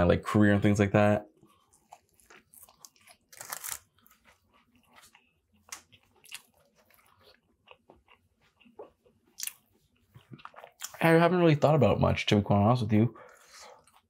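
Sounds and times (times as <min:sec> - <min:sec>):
person chewing sandwich: 0:01.3 - 0:11.0, 0:13.2 - 0:14.0.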